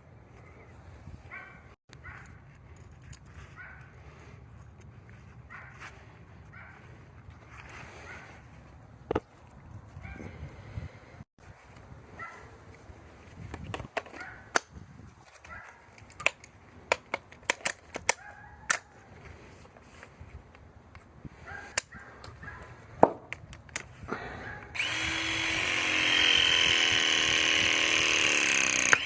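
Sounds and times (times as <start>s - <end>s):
tools clicking and knocking: 13.5s - 18.9s
battery-powered tool motor: 24.7s - 29.0s.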